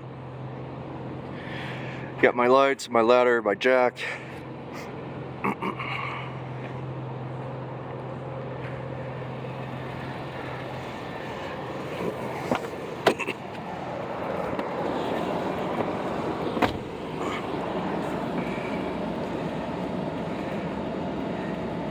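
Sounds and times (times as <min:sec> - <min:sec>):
road noise rushing: 0:00.0 - 0:21.9
vehicle low hum: 0:00.0 - 0:21.9.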